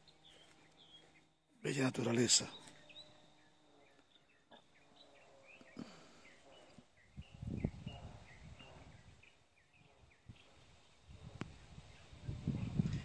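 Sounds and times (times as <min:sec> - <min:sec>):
small birds chirping: 0:00.0 - 0:13.0
low rumble on microphone: 0:06.5 - 0:13.0.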